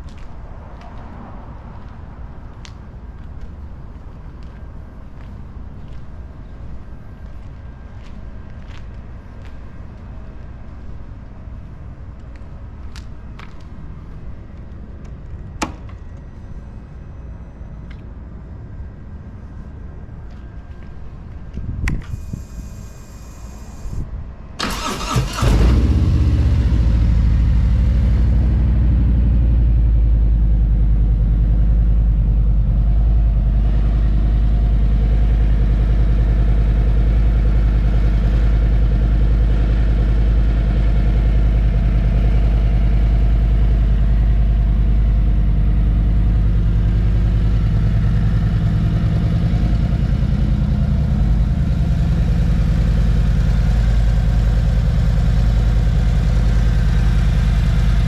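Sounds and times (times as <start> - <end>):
motorcycle starter cranking: 24.6 - 25.9
motorcycle engine idling loudly: 37.1 - 58.0.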